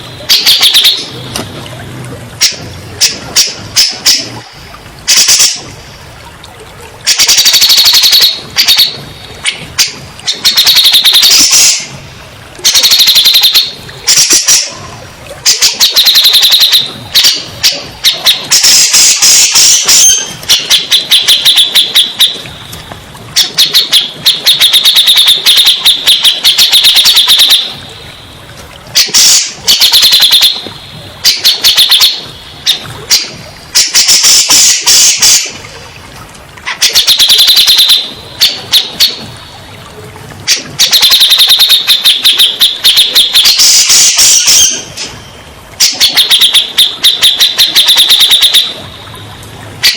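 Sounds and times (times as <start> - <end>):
bulbul singing chattering notes: 0.0 - 1.4, 7.0 - 12.0, 12.6 - 22.6, 23.4 - 27.9.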